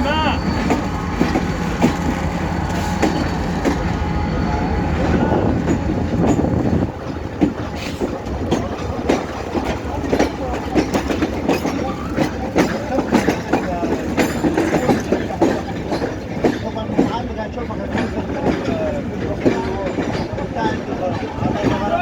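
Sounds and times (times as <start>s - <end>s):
wheel squeal: 0.0s - 6.5s
train rumbling: 0.0s - 22.0s
wheels clacking over rail joints: 0.0s - 22.0s.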